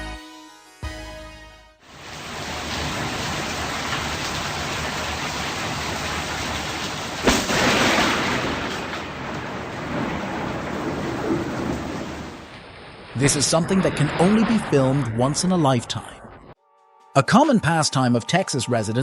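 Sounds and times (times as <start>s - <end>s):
heavy rain: 1.9s - 15.5s
thunderclap: 2.0s - 16.6s.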